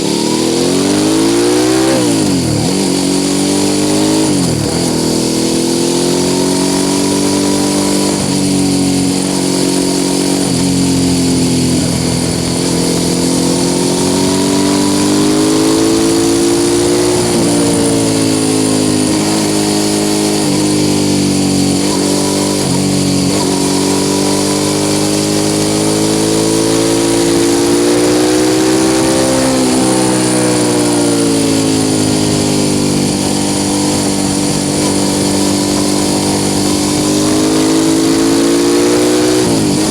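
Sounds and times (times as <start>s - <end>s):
motorcycle engine while riding: 0.0s - 39.9s.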